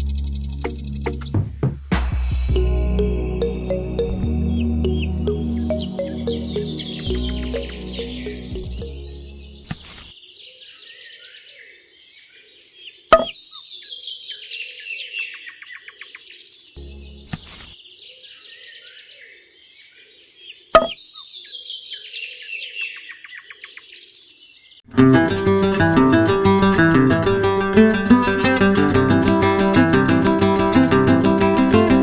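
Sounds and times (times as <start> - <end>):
birds chirping and trilling: 4.8 - 11.9
strummed guitar music: 4.9 - 9.0, 24.9 - 32.0.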